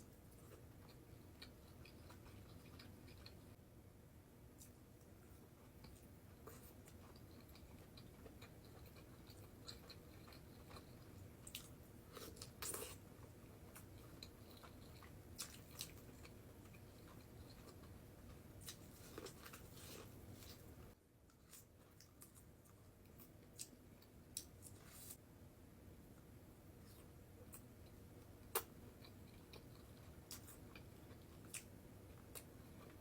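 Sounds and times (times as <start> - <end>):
low steady hum: 0.0 - 33.0
person chewing: 0.1 - 3.6, 5.4 - 20.7, 26.8 - 33.0.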